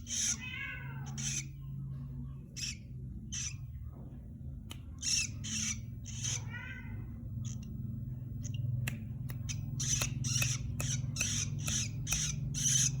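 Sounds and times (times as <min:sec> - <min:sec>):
bird giving harsh raspy calls: 0:00.0 - 0:00.4, 0:01.1 - 0:01.5, 0:05.0 - 0:06.5, 0:09.5 - 0:13.0
steady low hum: 0:00.0 - 0:13.0.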